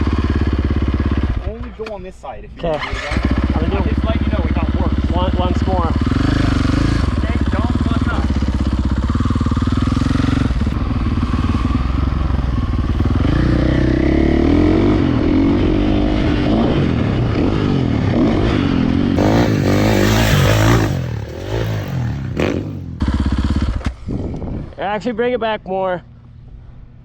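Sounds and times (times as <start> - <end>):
dirt bike engine revving: 0.0 - 1.6, 2.6 - 23.8
loud rough clattering noise: 19.2 - 24.0.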